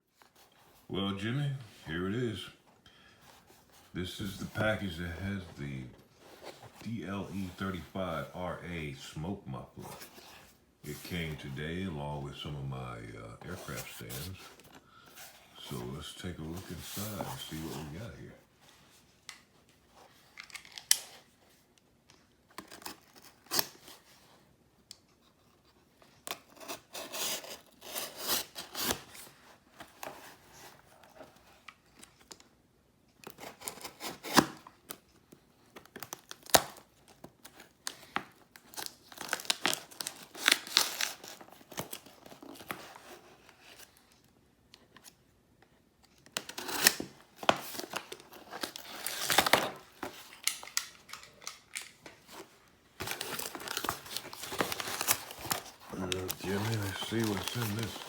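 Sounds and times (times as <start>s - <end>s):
package packing tearing and crinkling: 26.3s - 29.3s, 33.2s - 35.0s, 35.8s - 43.9s, 46.3s - 58.0s.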